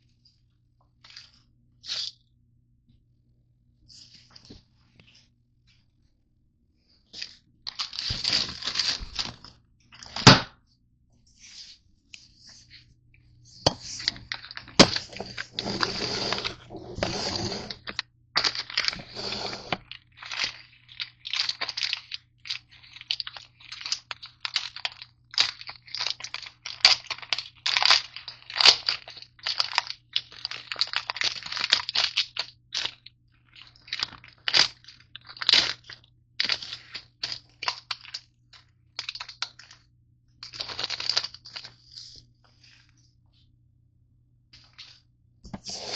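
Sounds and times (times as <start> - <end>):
granola bars crunching: 7.2 - 10.3, 14.0 - 41.9.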